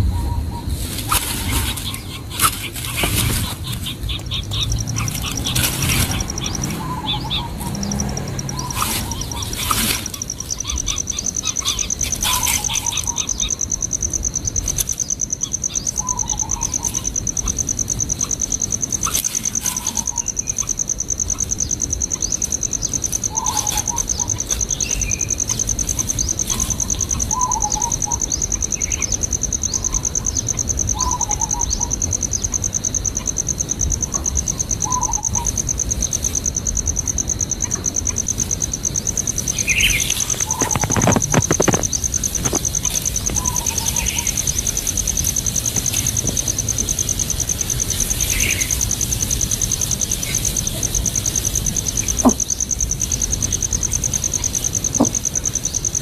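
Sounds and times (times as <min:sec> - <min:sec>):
high-pitched insect trill: 0:00.0 - 0:56.0
rustling: 0:00.7 - 0:13.1, 0:38.2 - 0:51.4.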